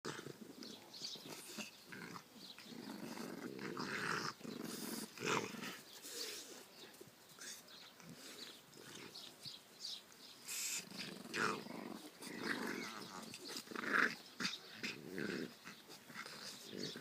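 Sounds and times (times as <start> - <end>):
dogs growling: 0.0 - 6.6, 10.5 - 17.0.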